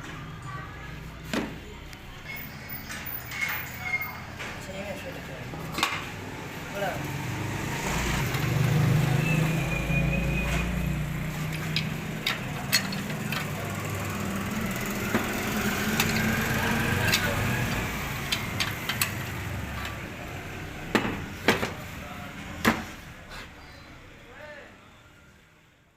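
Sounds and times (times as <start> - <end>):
sharp clicks and knocks: 11.5 - 13.6, 15.0 - 20.0.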